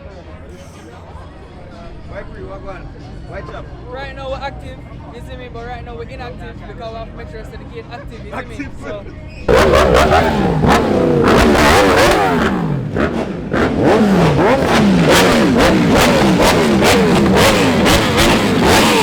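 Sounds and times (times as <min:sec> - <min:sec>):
car engine revving hard: 0:09.5 - 0:19.0
sharp exhaust pops: 0:09.5 - 0:19.0.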